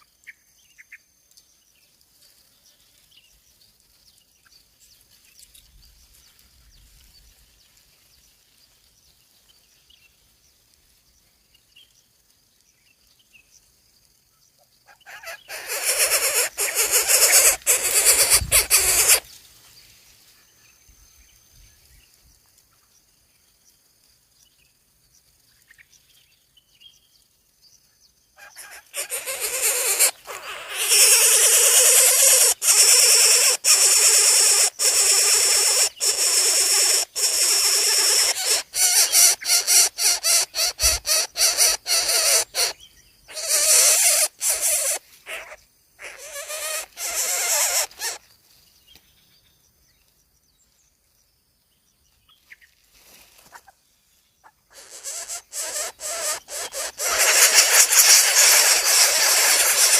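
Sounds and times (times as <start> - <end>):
nestlings giving harsh calls: 14.9 - 19.3, 28.4 - 48.2, 54.7 - 59.9.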